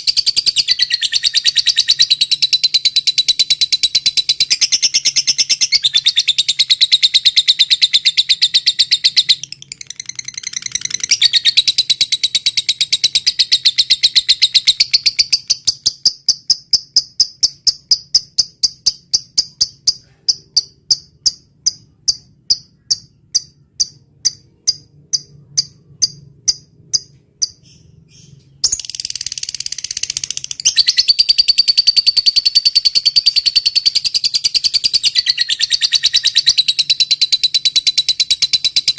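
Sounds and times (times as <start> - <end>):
recorded songbird trills and chirps: 0.0 - 38.9.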